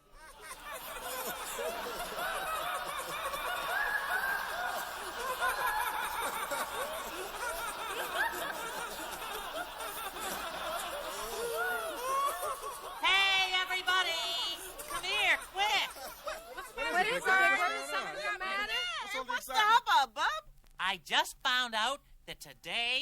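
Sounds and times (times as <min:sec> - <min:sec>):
group of people laughing: 0:00.0 - 0:19.7.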